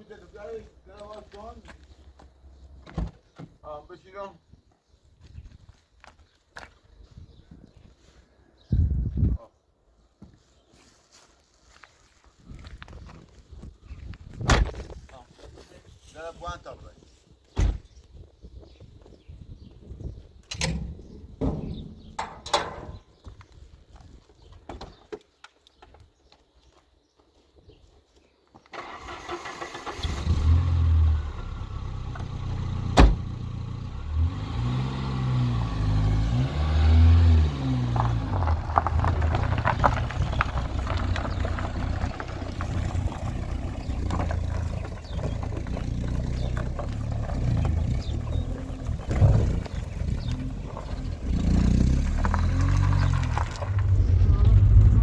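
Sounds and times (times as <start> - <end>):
car engine revving: 29.2 - 55.0.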